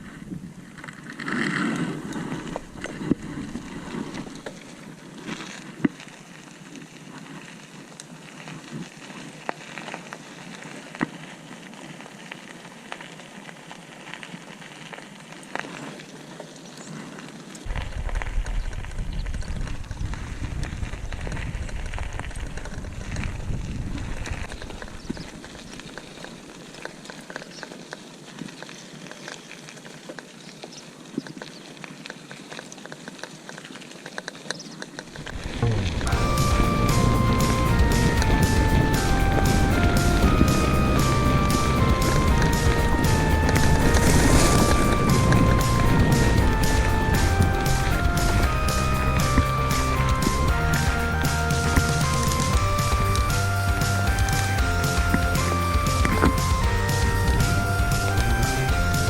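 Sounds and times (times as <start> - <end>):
bicycle tyres crackling over grit: 0.0 - 59.0
low rumble: 35.2 - 54.5.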